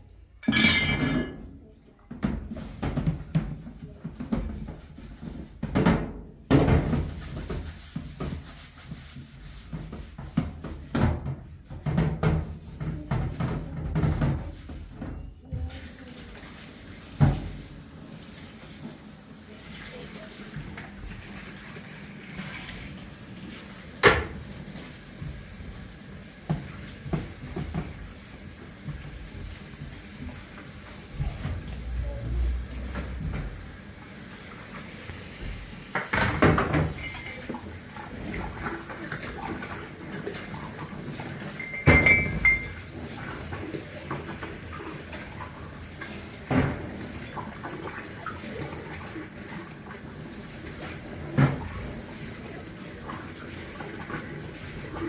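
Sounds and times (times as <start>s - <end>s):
kitchenware clinking and knocking: 0.4s - 1.6s, 36.0s - 37.6s, 41.5s - 43.0s
running water: 15.6s - 55.0s.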